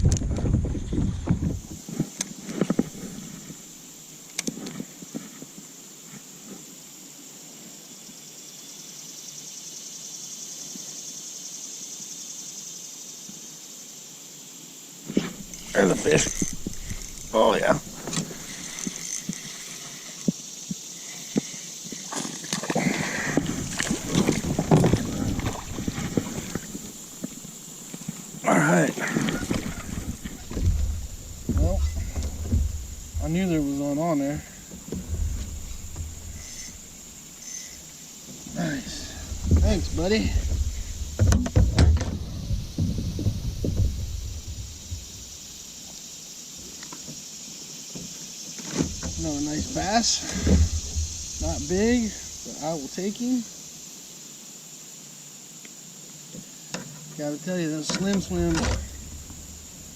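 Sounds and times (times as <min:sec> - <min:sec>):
wind buffeting microphone: 0:00.0 - 0:01.8, 0:15.4 - 0:19.0, 0:23.4 - 0:27.1, 0:29.1 - 0:37.3, 0:38.4 - 0:45.4
clatter and splashing: 0:15.2 - 0:19.6, 0:22.1 - 0:27.3, 0:29.0 - 0:33.6
knocks: 0:29.3 - 0:33.7, 0:39.2 - 0:45.2.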